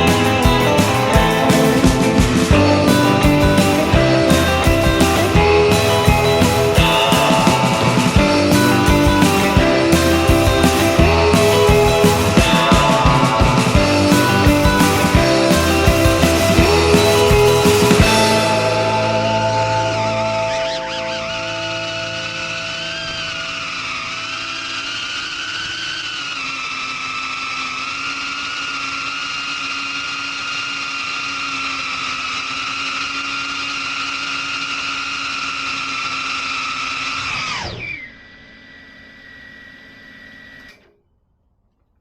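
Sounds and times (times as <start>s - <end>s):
drone motors whining: 0.0s - 41.0s
quiet high tone: 18.0s - 24.6s.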